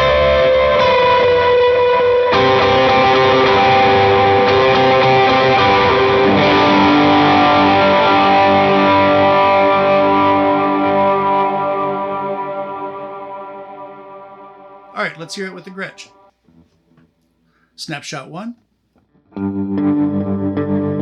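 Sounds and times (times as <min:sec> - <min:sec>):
overdriven electric guitar notes: 0:00.0 - 0:14.8, 0:19.1 - 0:21.0.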